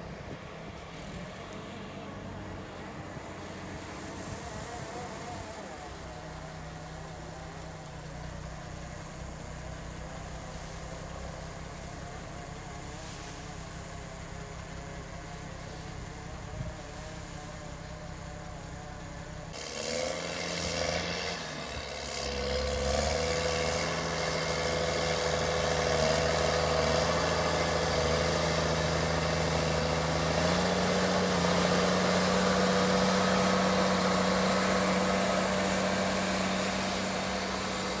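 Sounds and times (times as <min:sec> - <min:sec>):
farm machine engine running: 0:00.0 - 0:38.0
thin high whine: 0:21.6 - 0:38.0.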